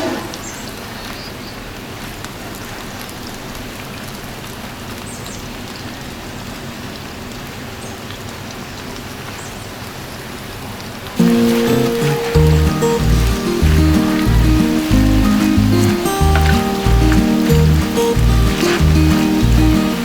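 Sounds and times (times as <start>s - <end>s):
deep-frying sizzle in oil: 10.8s - 20.0s
music: 11.2s - 20.0s.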